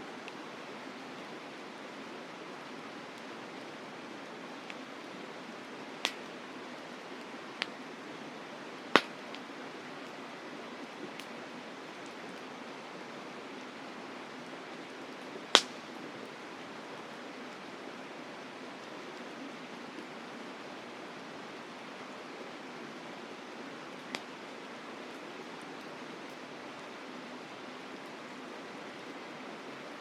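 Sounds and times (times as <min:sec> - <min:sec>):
campfire crackling: 0:00.1 - 0:30.0
burning wood popping: 0:09.0 - 0:09.4, 0:15.6 - 0:15.9.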